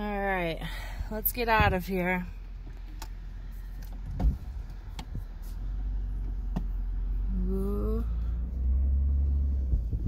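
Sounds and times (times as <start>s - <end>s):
minivan engine idling and pulling away: 0.2s - 10.0s
rising voice-like hum: 7.2s - 10.0s.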